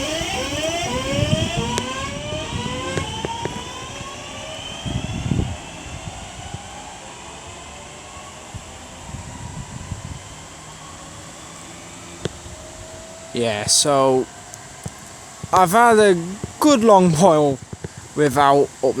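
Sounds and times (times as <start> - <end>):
sharp clicks: 0.0 - 4.2
electric train motor whine: 0.0 - 18.2.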